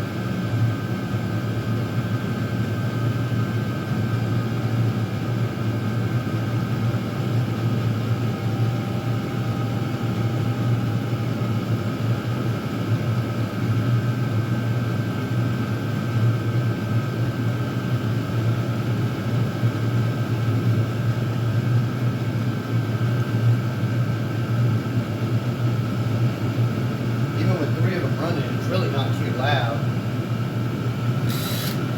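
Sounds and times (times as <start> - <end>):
air heaters humming and blowing: 0.0 - 31.9
faint high whine: 31.2 - 31.9.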